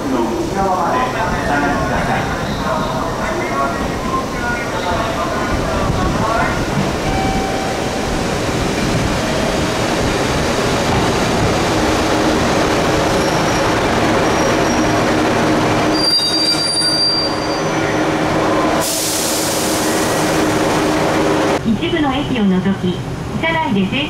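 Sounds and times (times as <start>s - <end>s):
train wheels and brakes squealing: 13.1s - 15.1s, 15.9s - 20.3s.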